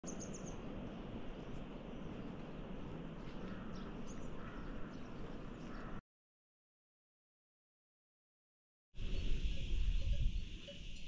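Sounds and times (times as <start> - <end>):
outdoor background rush: 0.0 - 6.0
small birds chirping: 0.0 - 6.0, 9.0 - 11.0.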